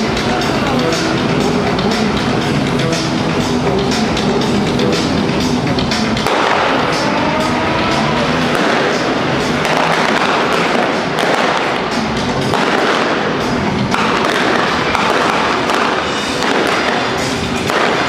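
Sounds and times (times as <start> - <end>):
loud music: 0.0 - 18.0
pyrotechnics crackling and popping: 8.4 - 18.0.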